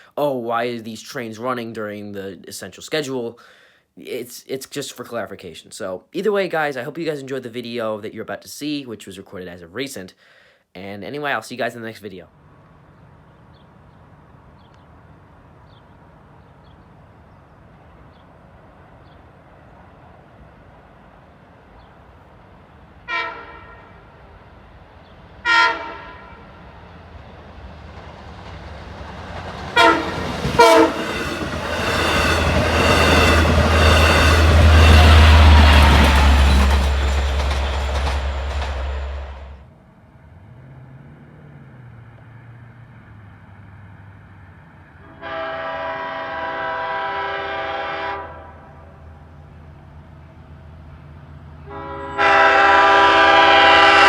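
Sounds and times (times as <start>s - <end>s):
locomotive engine drone: 12.3s - 54.0s
train running noise: 12.4s - 39.6s
train horn blasts: 23.0s - 24.0s, 25.4s - 26.4s, 29.8s - 36.8s, 45.0s - 48.9s, 51.6s - 54.0s.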